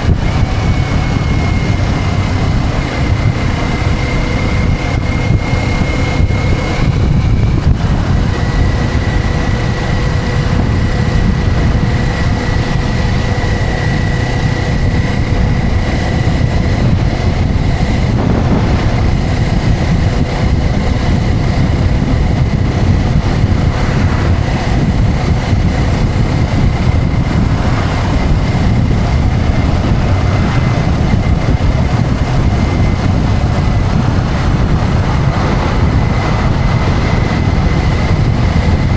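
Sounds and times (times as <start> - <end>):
motorcycle engine: 0.0 - 38.9
wind rush over microphone: 0.0 - 38.9.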